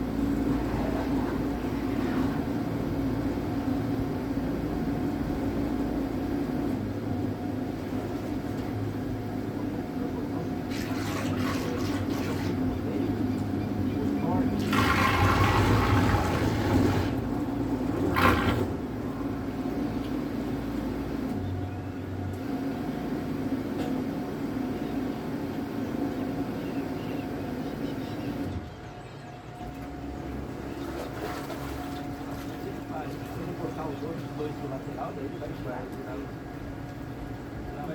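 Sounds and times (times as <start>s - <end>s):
electric boat motor humming: 0.0s - 37.8s
water washing against hull: 6.9s - 20.8s, 29.7s - 37.9s
water splashing: 10.6s - 12.9s, 14.4s - 18.8s, 30.4s - 33.7s.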